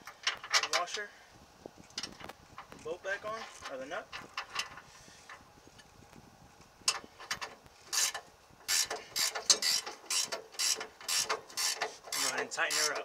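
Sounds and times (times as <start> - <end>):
ratchet wrench clicking: 7.9 - 13.0.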